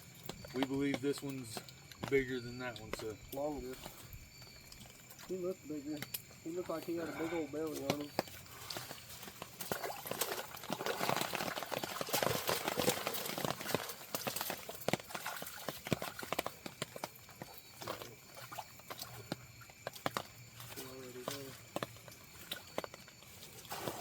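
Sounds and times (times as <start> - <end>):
wet slaps and splashing: 7.7 - 24.0.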